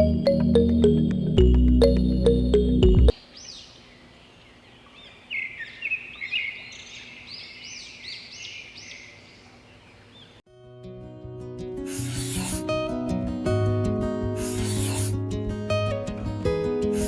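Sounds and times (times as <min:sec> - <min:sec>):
birds chirping: 0:03.1 - 0:10.4
faint outdoor hiss: 0:03.1 - 0:17.0.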